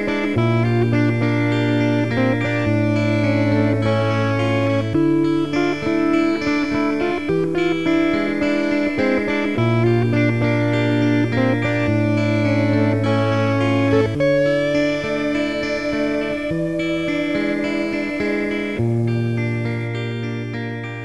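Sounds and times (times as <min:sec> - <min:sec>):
instrumental guitar music: 0:00.0 - 0:21.0.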